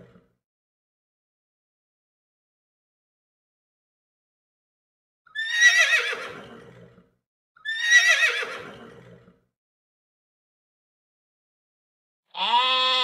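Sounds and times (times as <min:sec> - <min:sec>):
horse whinnying: 0:05.3 - 0:07.0, 0:07.6 - 0:09.4.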